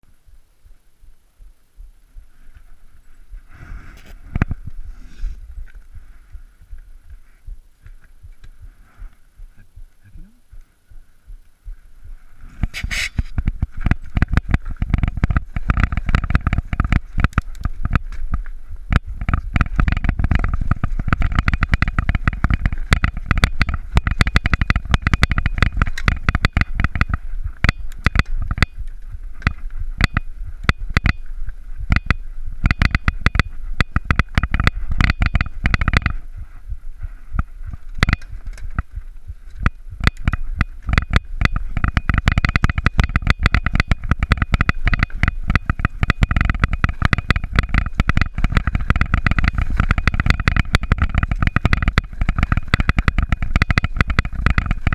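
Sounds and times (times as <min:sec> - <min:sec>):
wind on microphone: 0:01.4 - 0:54.9
mountain bike rattling: 0:12.4 - 0:54.9.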